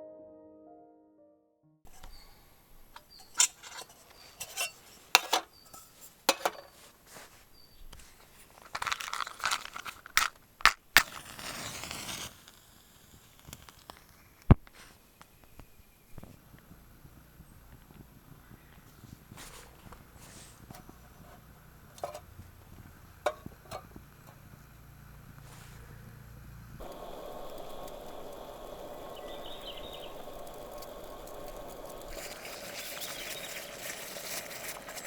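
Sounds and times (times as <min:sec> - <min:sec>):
crinkling: 0:01.9 - 0:35.0
small objects clicking and clinking: 0:08.5 - 0:11.2.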